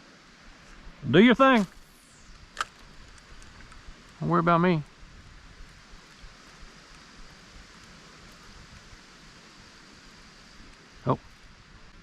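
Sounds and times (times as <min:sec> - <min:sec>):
wind hiss: 0:00.0 - 0:12.0
light ticks: 0:10.6 - 0:10.8.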